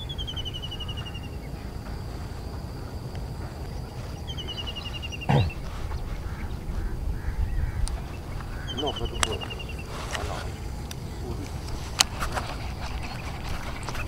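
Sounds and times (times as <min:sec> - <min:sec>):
high insect whine: 0:00.0 - 0:14.0
wind rumble on microphone: 0:00.0 - 0:14.0
bird calling rapid high notes: 0:08.3 - 0:10.0.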